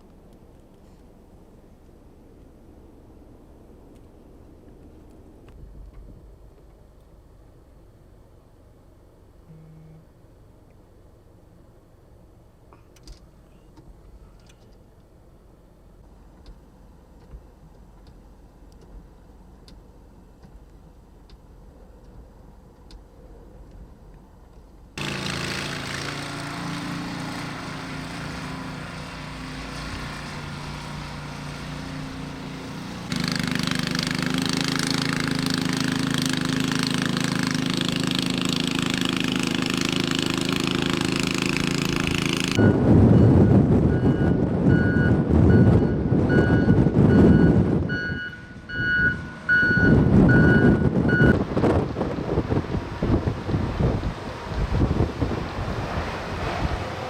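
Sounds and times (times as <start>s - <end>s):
heavy vehicle engines running: 0.0s - 57.0s
vehicle backup alarm beeping: 9.5s - 10.0s, 42.6s - 51.4s
wind buffeting microphone: 42.6s - 57.0s.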